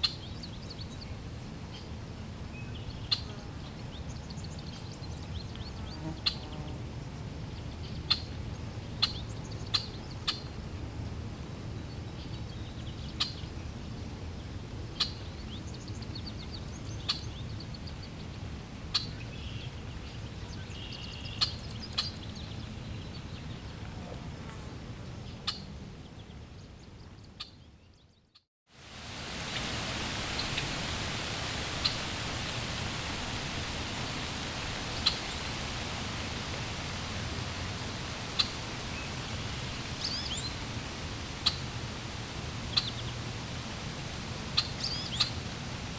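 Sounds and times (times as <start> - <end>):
low outdoor rumble: 29.0 - 45.9
birds chirping: 29.5 - 41.9.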